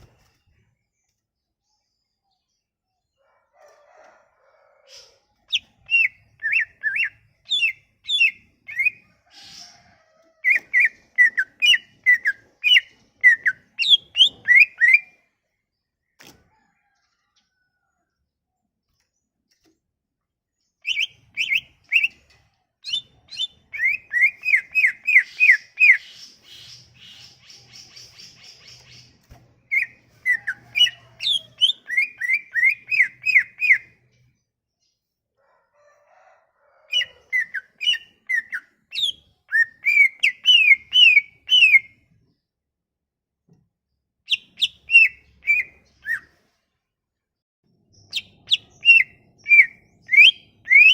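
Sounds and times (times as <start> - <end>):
songbird whistling song: 4.9 - 9.7, 10.4 - 15.2, 20.8 - 34.0, 36.9 - 42.1, 44.3 - 46.5, 48.0 - 50.9.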